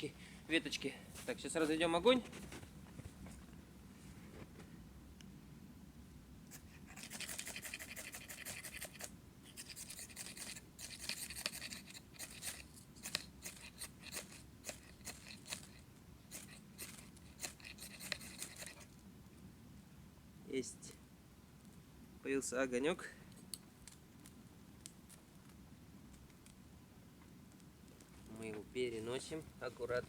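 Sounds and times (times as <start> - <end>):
fire steel scraped with striker: 7.0 - 18.9.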